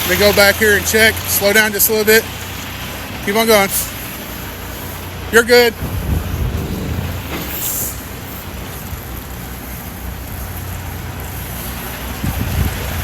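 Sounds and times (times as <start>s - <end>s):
diesel truck engine rumbling: 0.0s - 13.0s
wind noise: 5.7s - 9.4s, 12.1s - 13.0s
brief hiss: 6.2s - 8.8s.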